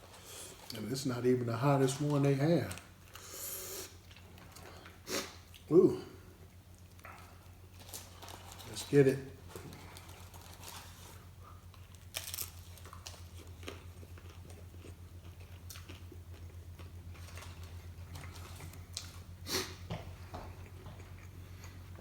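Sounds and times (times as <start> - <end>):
low electrical hum: 0.0 - 22.0
person chewing food: 9.6 - 22.0.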